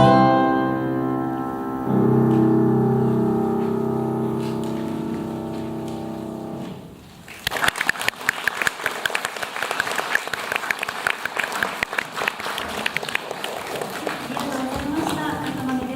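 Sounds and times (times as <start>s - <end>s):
sustained musical chord: 0.0s - 7.0s
audience applauding: 4.4s - 15.9s.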